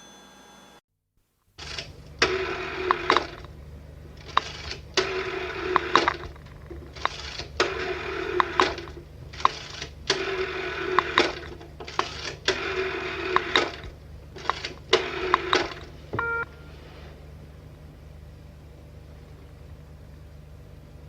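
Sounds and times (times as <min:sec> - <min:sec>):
short electronic beep: 0:16.2 - 0:16.8
telephone bell ringing: 0:16.2 - 0:16.8.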